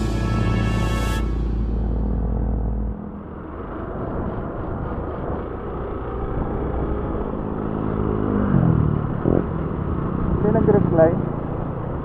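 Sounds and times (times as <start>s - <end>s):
motorcycle engine running: 0.0s - 12.0s
wind noise on microphone: 3.3s - 7.5s, 8.4s - 10.4s.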